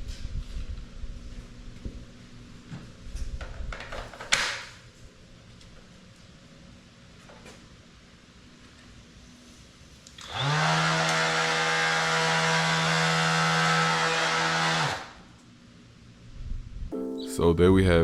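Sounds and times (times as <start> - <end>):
orbital sander running: 10.3 - 15.0.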